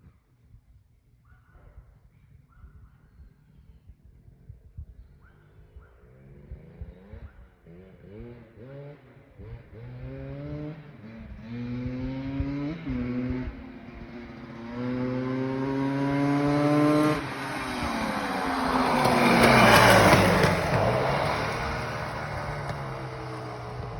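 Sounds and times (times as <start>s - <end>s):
two-stroke mini bike engine revving: 6.3s - 23.9s.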